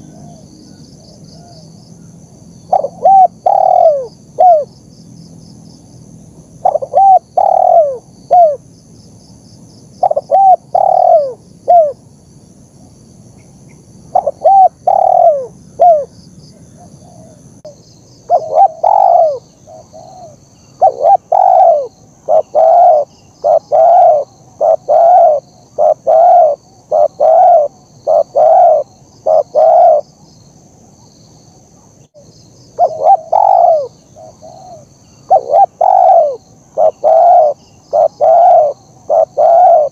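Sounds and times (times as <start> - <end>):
dove cooing: 0.0 - 0.5, 2.7 - 4.7, 6.6 - 8.6, 10.0 - 12.0, 14.1 - 16.1, 16.7 - 17.5, 18.3 - 30.0, 32.8 - 39.9
faint high-pitched chirping: 13.3 - 39.9.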